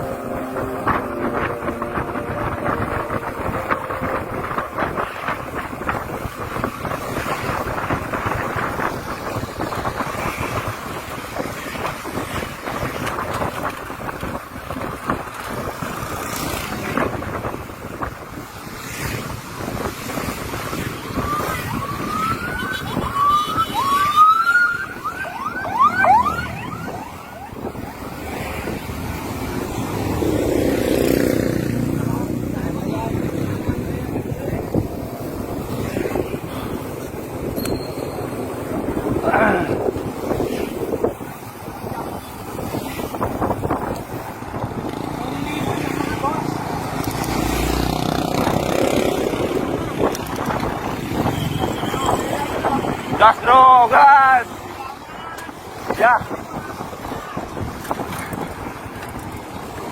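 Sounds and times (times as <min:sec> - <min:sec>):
wind rushing over microphone: 0:00.0 - 0:59.9
bike brakes squealing: 0:37.6 - 0:38.4.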